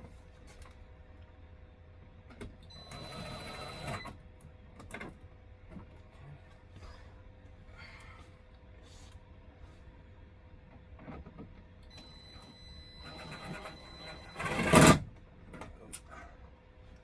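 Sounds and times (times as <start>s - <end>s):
power drill whining: 12.0s - 15.0s.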